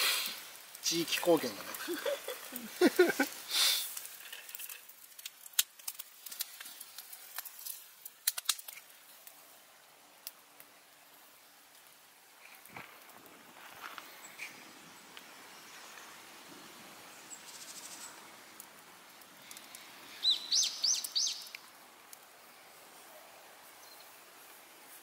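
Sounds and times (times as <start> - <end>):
faint outdoor background: 0.0 - 25.0
bird chirping: 20.1 - 21.5.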